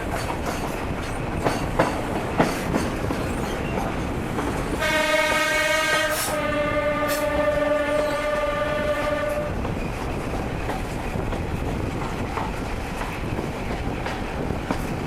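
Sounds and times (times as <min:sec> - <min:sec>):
train rumbling on rails: 0:00.0 - 0:15.0
train air horn: 0:04.8 - 0:09.6.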